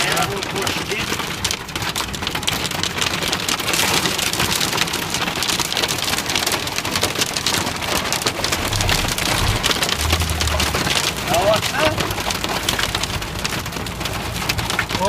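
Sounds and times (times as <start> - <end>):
heavy rain pouring: 0.0 - 15.0
low hum: 8.4 - 11.3.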